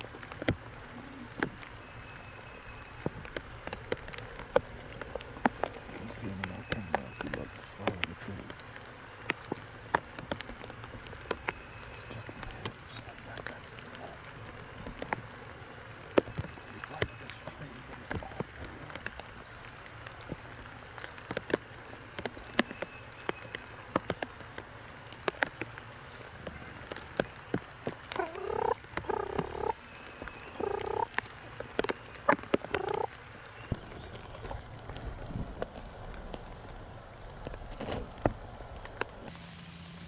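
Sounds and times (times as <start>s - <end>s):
wild turkey rattling call: 0.0s - 35.0s
sharp clicks and taps: 26.4s - 34.3s.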